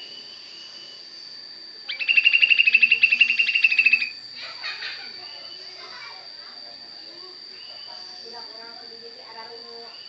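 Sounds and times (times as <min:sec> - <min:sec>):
high insect-like tone: 0:00.0 - 0:10.0
bird singing rattling trill: 0:01.9 - 0:05.8.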